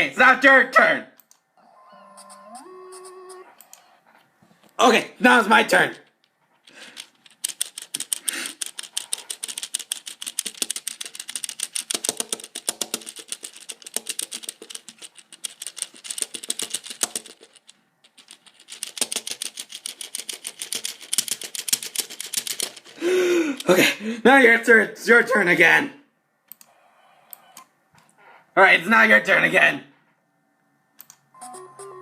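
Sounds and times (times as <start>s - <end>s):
rapid sharp clicks: 6.8s - 23.0s.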